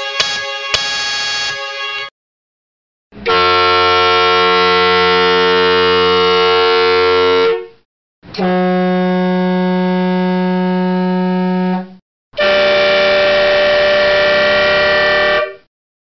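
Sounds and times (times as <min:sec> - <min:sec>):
dual-trumpet air horn blast: 0:00.0 - 0:02.1, 0:03.2 - 0:07.7, 0:08.4 - 0:11.8, 0:12.4 - 0:15.7
single-tone air horn blast: 0:00.0 - 0:02.1, 0:03.2 - 0:07.7, 0:08.4 - 0:10.3, 0:12.4 - 0:15.7
tri-tone train air horn chord: 0:00.0 - 0:02.1, 0:03.2 - 0:07.7, 0:12.4 - 0:15.7.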